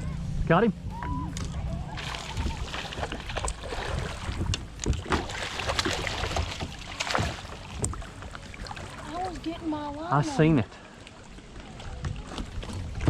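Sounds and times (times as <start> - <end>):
wind on microphone: 0.0 - 6.8, 11.6 - 13.0
water sloshing around kayak: 0.8 - 13.0.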